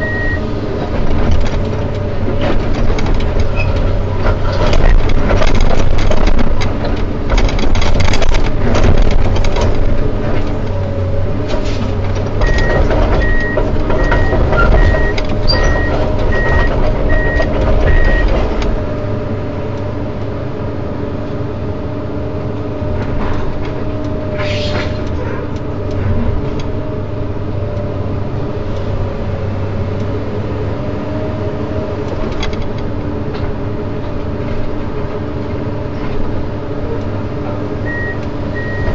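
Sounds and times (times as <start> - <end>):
warning beeps: 0.0 - 0.4
excavator diesel engine: 0.0 - 38.9
knocks and clatter: 0.2 - 19.2.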